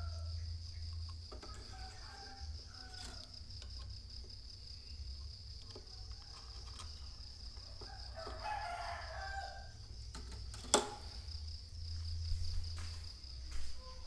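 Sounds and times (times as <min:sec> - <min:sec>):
rooster crowing: 0:00.0 - 0:00.5, 0:01.4 - 0:03.4, 0:05.8 - 0:09.8.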